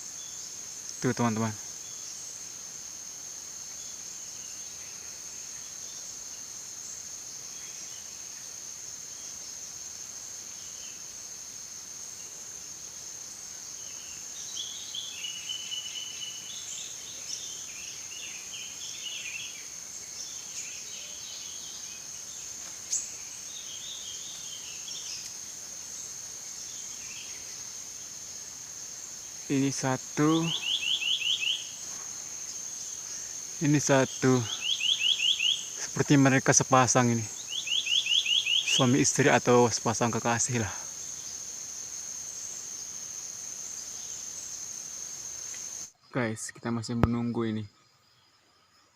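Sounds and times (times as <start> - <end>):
forest insects droning: 0.0 - 48.9
short chirping bird calls: 30.2 - 31.8, 34.5 - 35.8, 37.4 - 39.0.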